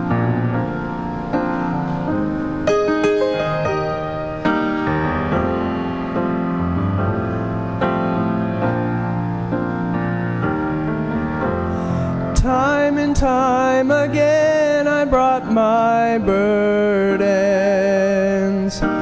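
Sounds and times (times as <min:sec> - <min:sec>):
piano chords: 0:00.0 - 0:19.0.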